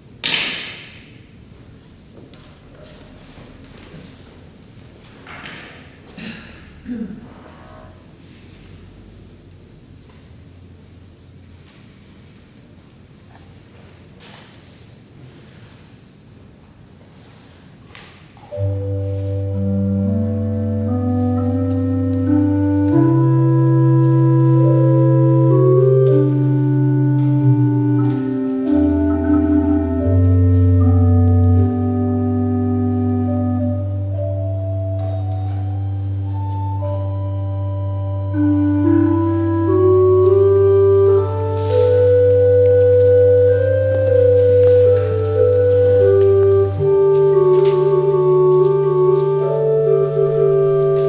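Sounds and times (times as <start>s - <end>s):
organ chords: 18.4s - 51.0s.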